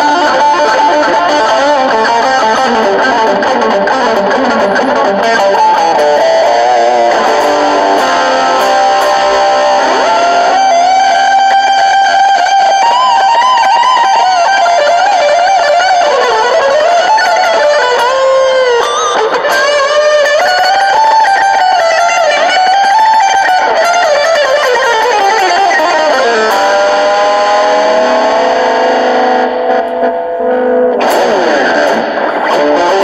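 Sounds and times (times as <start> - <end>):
overdriven electric guitar lead: 0.0 - 33.0.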